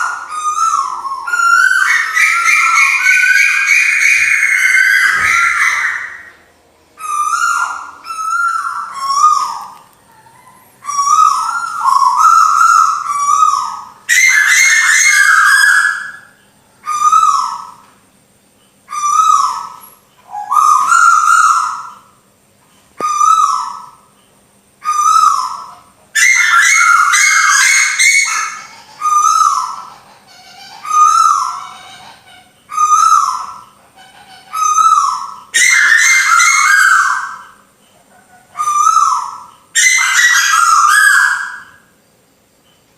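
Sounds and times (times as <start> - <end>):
fast high bird chirping: 0.0 - 6.4, 24.8 - 37.7, 38.5 - 41.9
recorded birdsong falling whistles: 0.0 - 22.3, 23.0 - 30.0, 32.6 - 33.8, 34.6 - 38.0, 38.6 - 42.9.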